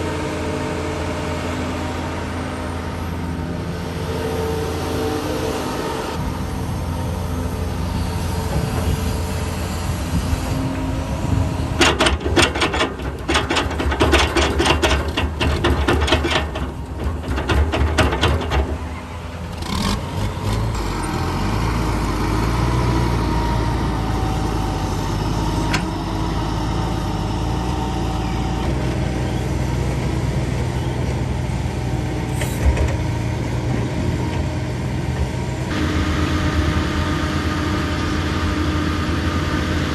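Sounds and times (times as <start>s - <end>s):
diesel construction machinery running: 0.0s - 39.9s
rapid clattering knocks: 11.8s - 18.9s.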